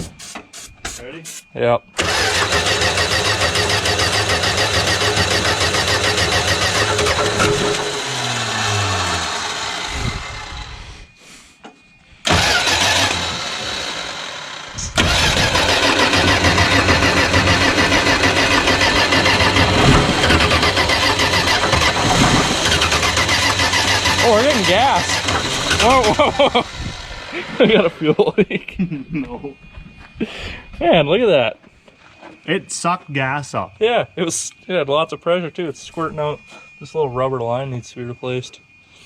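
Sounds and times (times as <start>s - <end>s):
engine cranking on starter: 2.0s - 11.1s, 12.2s - 27.9s.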